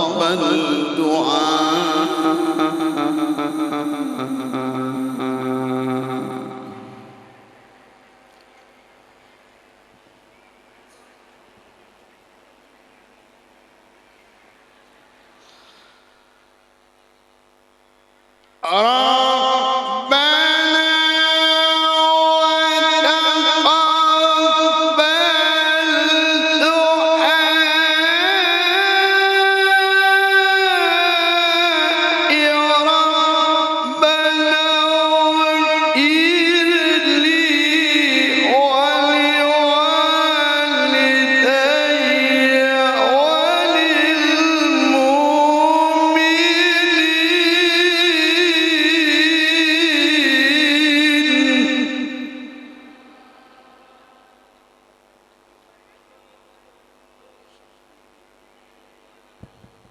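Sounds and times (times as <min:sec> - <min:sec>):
man reciting melodically: 0:00.0 - 0:07.5, 0:18.6 - 0:54.4.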